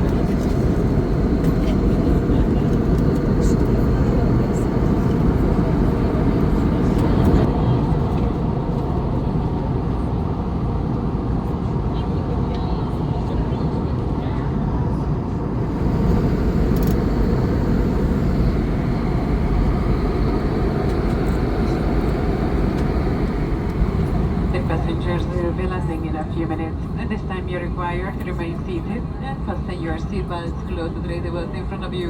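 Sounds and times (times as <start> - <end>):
airliner cabin engine rumble: 0.0 - 32.0.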